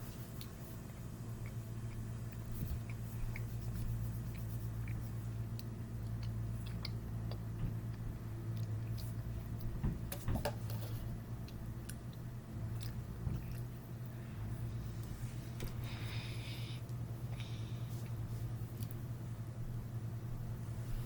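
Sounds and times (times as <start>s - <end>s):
steady low hum: 0.0s - 21.0s
person chewing: 0.2s - 9.6s, 11.4s - 13.8s.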